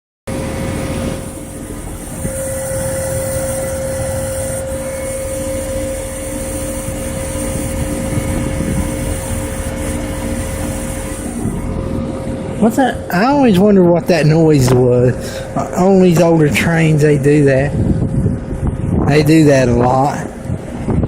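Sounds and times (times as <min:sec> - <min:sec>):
heat pump compressor and fan hum: 0:00.3 - 0:21.0
steady whine: 0:00.3 - 0:21.0.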